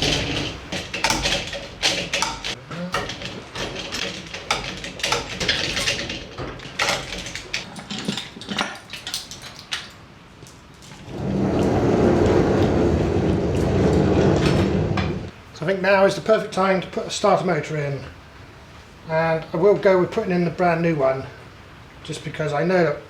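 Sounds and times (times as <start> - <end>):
metallic clicks and clunks of tools: 0.0 - 11.0.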